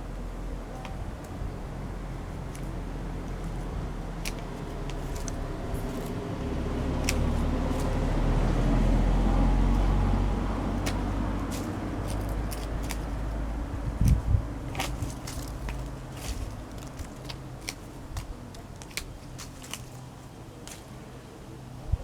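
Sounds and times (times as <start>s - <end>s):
vehicle passing by: 1.4s - 18.6s.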